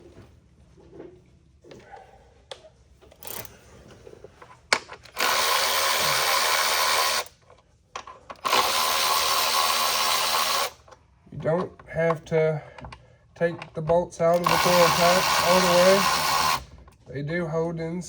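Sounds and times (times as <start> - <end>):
cordless power tool running: 5.1 - 7.3, 8.4 - 10.8, 14.3 - 16.7.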